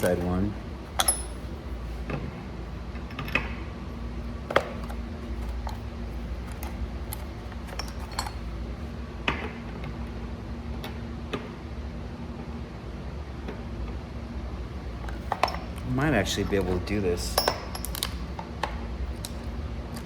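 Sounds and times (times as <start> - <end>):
steady low hum: 0.0 - 20.0
small metal parts clinking: 1.0 - 1.5, 17.3 - 18.2.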